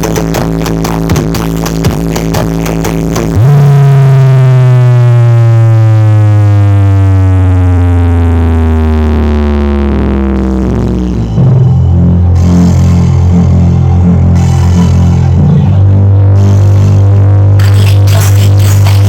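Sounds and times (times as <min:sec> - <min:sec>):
loud synth bass tone sliding down: 0:00.0 - 0:19.0.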